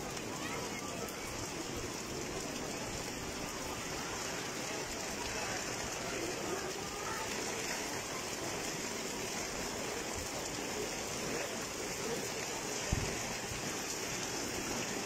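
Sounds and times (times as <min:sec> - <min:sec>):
rain on wet pavement: 0:00.0 - 0:15.0.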